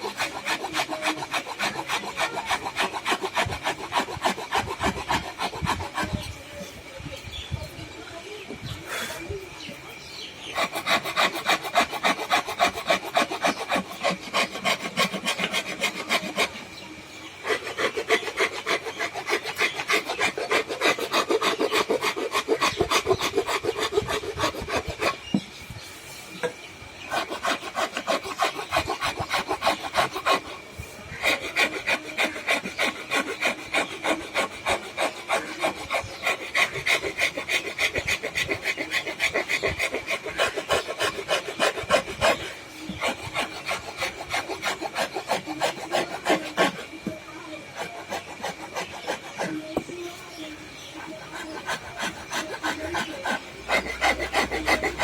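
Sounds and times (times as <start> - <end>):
hand rasp scraping wood: 0.0 - 7.8, 8.8 - 55.0.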